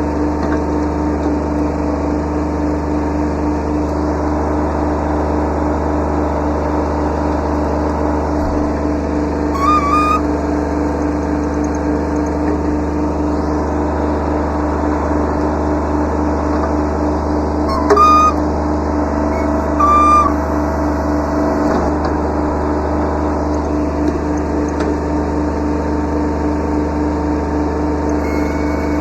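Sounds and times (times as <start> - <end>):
diesel tractor engine running: 0.0 - 29.0
short high-pitched whines: 9.6 - 10.4, 17.7 - 22.8, 28.1 - 29.0.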